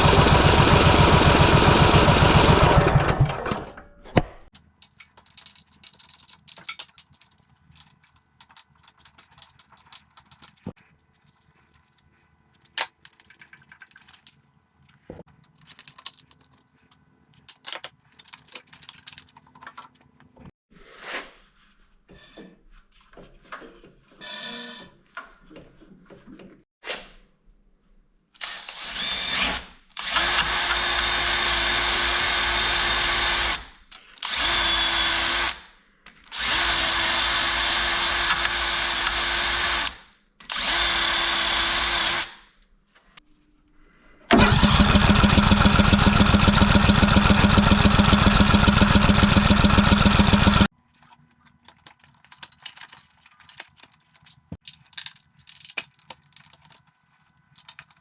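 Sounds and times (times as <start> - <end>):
power tool rapid hammering: 0.0 - 3.6, 44.3 - 50.7
power tool motor whining: 44.3 - 50.7.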